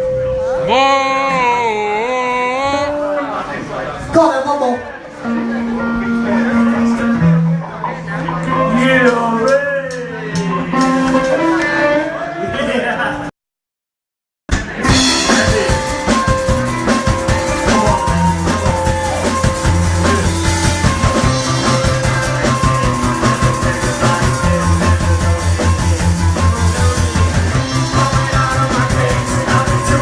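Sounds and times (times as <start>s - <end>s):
rock band playing live: 5.0s - 13.2s, 14.5s - 30.0s.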